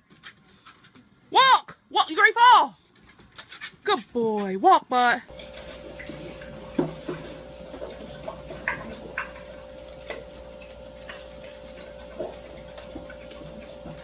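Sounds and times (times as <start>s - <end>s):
steady electrical hum: 5.2s - 14.0s.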